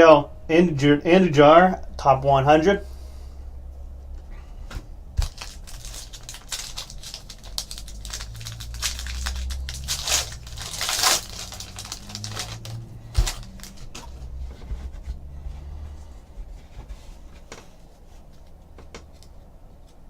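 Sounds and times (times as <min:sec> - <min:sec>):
foil wrappers crinkling: 0:05.2 - 0:14.1
cards rustling: 0:05.2 - 0:14.4.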